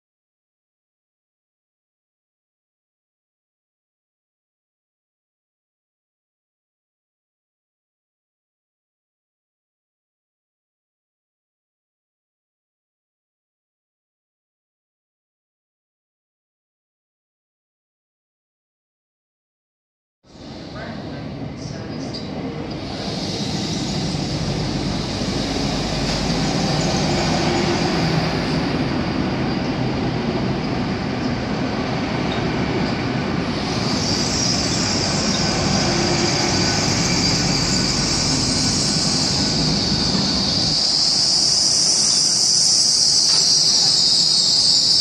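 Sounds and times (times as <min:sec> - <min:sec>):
train rumbling along platform: 0:20.3 - 0:45.0
high-pitched brake squeal: 0:22.9 - 0:28.9, 0:33.6 - 0:45.0.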